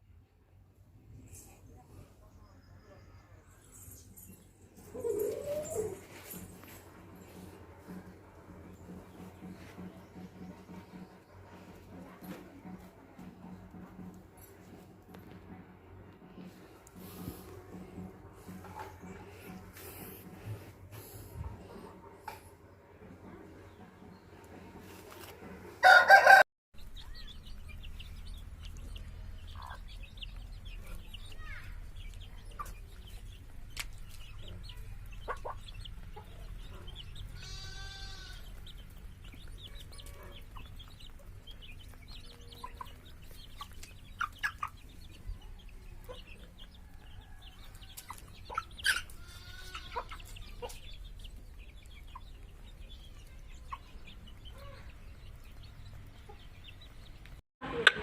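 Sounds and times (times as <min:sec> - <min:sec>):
chickens clucking and calling: 0:04.8 - 0:15.6, 0:16.3 - 0:58.0
rooster crow: 0:25.8 - 0:26.5.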